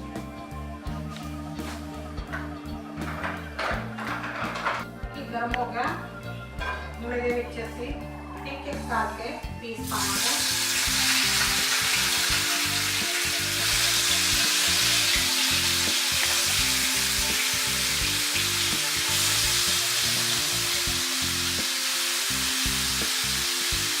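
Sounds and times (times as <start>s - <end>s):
chicken sizzling in hot oil: 9.9s - 24.0s.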